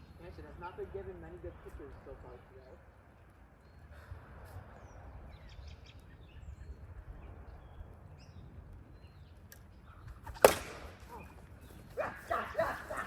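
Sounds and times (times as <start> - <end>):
low outdoor background noise: 0.0 - 13.0
plastic bat striking ball: 10.3 - 11.0.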